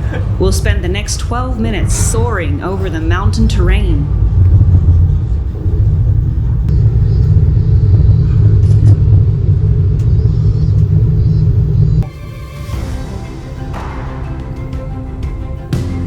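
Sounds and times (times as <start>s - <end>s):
background music: 0.0s - 6.2s, 12.0s - 16.0s
gondola cabin rumbling: 0.0s - 12.1s.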